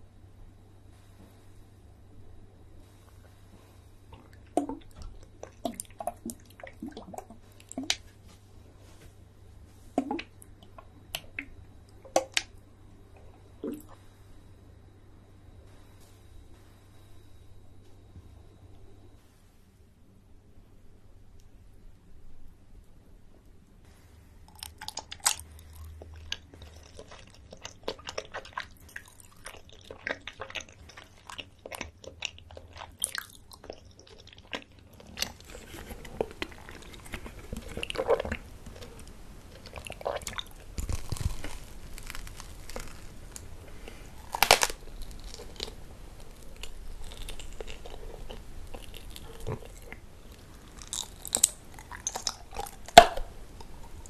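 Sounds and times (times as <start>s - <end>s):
wet chewing clicks and smacks: 24.5s - 43.5s, 44.2s - 54.0s
candy crunches: 24.5s - 54.0s.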